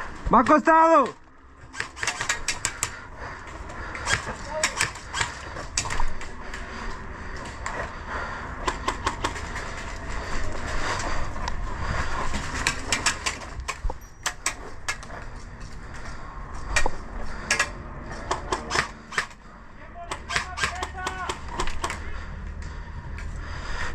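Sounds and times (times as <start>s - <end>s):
airsoft guns firing: 1.7s - 2.9s, 4.0s - 6.2s, 12.6s - 15.0s, 20.0s - 22.1s
steady low rumble: 2.8s - 20.0s, 21.4s - 23.9s.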